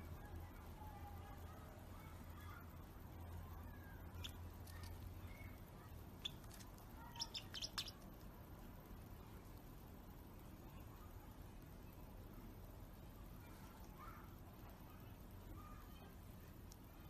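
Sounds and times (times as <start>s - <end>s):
faint bird chirps: 0.0s - 8.1s
low steady hum: 0.0s - 17.0s.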